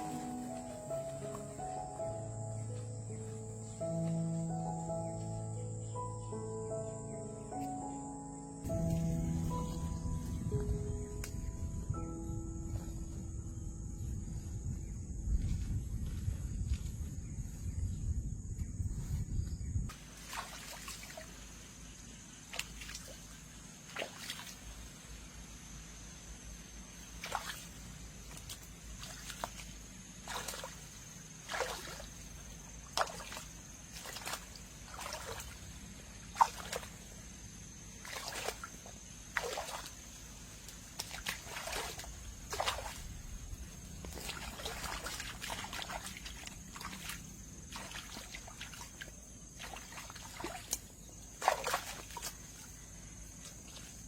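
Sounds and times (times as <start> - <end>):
water splashing and sloshing: 19.9 - 25.4, 26.6 - 54.0.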